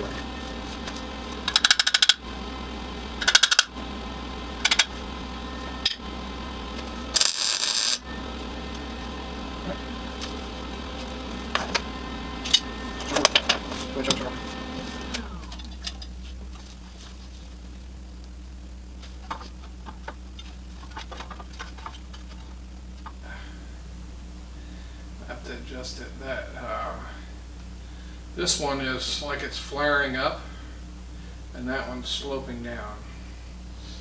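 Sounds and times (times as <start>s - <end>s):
low hum: 0.0s - 34.0s
metallic clicking and clinking: 1.5s - 2.2s, 3.2s - 3.7s.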